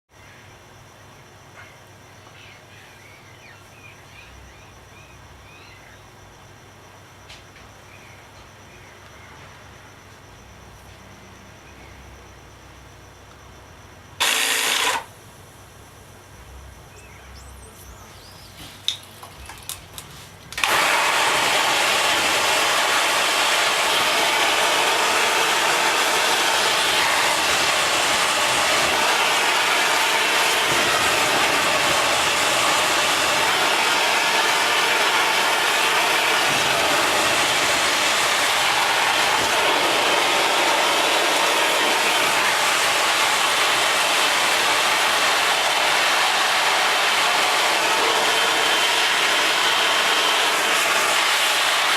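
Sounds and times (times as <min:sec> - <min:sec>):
jet engine rushing noise: 0:20.6 - 0:51.9.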